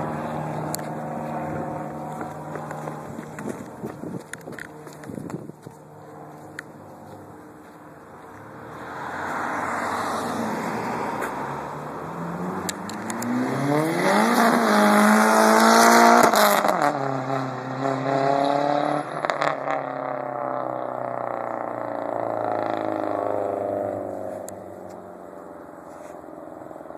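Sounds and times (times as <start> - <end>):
car engine revving: 0.0 - 5.0, 8.5 - 26.9.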